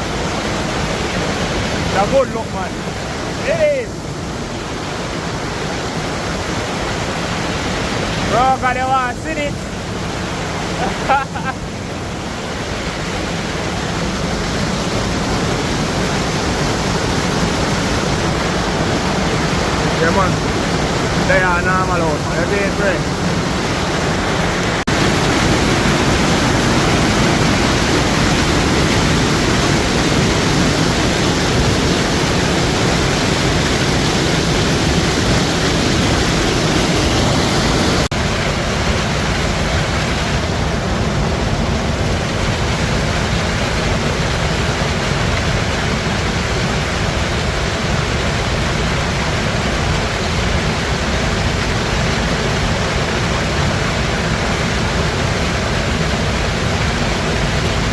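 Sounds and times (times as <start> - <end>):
river water rushing: 0.0 - 57.9.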